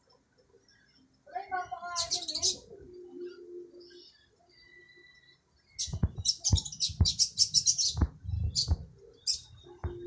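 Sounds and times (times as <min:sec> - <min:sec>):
small birds chirping: 0:00.0 - 0:10.0
soft low thumps: 0:05.8 - 0:09.0, 0:09.6 - 0:10.0.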